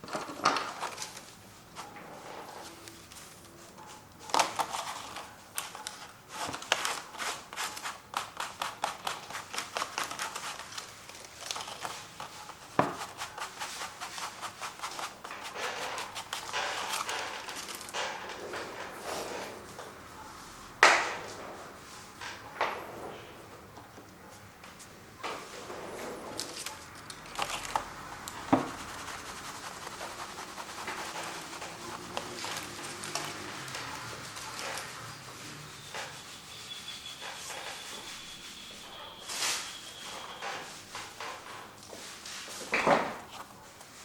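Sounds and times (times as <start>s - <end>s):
scratchy paint strokes on canvas: 11.9s - 17.1s, 27.6s - 40.1s.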